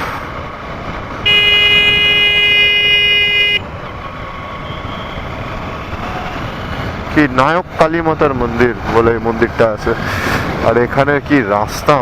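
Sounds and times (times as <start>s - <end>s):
wind and road rush: 0.0s - 12.0s
vehicle horn blast: 1.2s - 3.7s.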